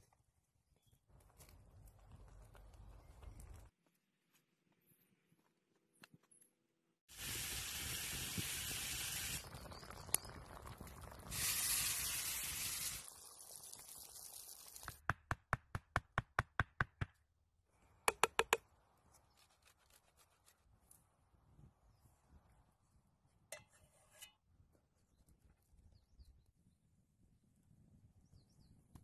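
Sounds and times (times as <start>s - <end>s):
food sizzling in a pan: 7.1s - 15.0s.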